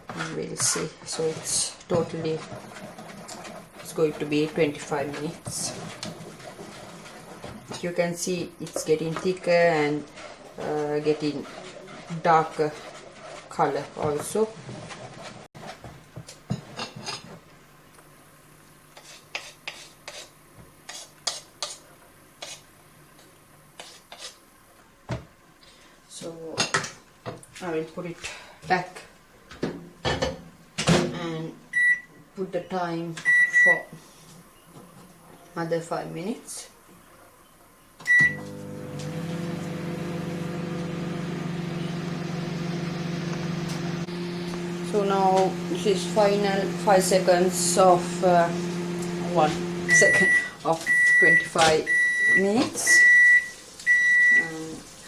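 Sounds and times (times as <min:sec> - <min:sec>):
spoon scraping thick mixture: 0:10.0 - 0:14.4, 0:18.9 - 0:22.7, 0:23.7 - 0:24.5, 0:39.7 - 0:51.8
microwave oven humming: 0:38.0 - 0:52.4.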